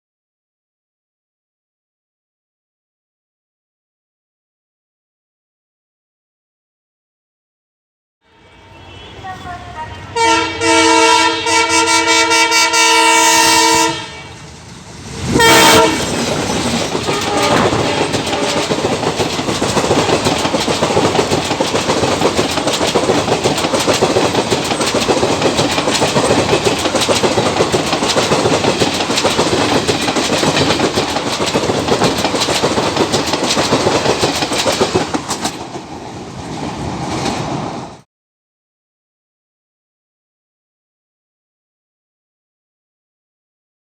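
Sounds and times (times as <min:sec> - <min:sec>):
train horn blasts: 0:08.2 - 0:14.4, 0:15.4 - 0:16.1, 0:17.1 - 0:18.8
train passing with rumble: 0:08.4 - 0:38.0
wheels clacking over rail joints: 0:15.7 - 0:37.8.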